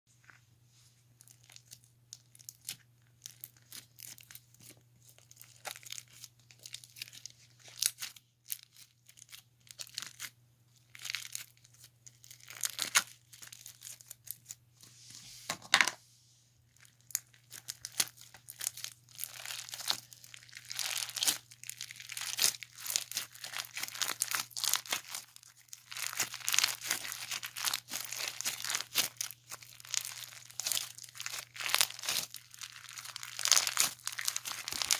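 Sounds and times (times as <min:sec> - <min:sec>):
hands kneading slime: 0:16.9 - 0:34.9
slime crackles and pops: 0:17.0 - 0:34.9.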